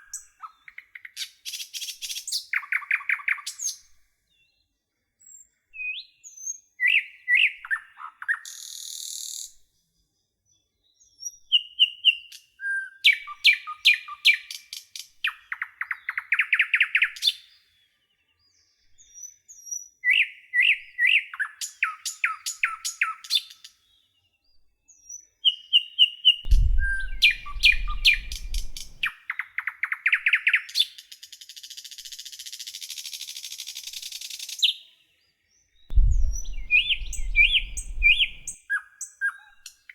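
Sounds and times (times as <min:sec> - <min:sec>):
low rumble: 0:26.5 - 0:29.0, 0:35.9 - 0:38.6
songbirds chirping and trilling: 0:26.5 - 0:29.0, 0:35.9 - 0:38.6.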